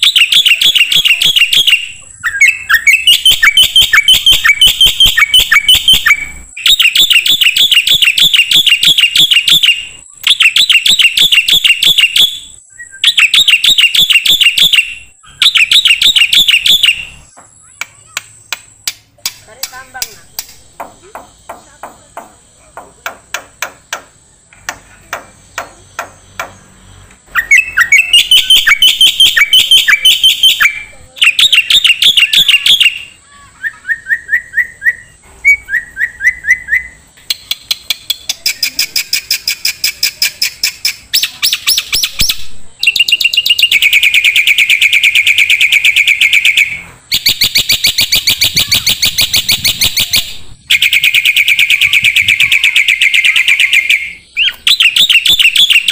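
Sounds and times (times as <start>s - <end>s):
bird clicks: 17.8s - 20.6s.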